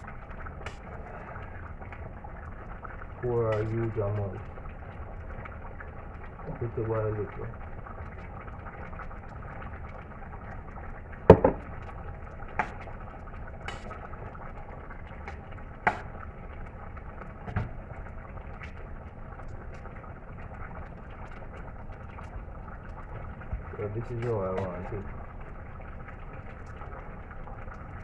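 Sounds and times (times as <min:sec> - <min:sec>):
stew simmering with hiss: 0:00.0 - 0:28.0
utensil knocking against pot: 0:11.3 - 0:11.7.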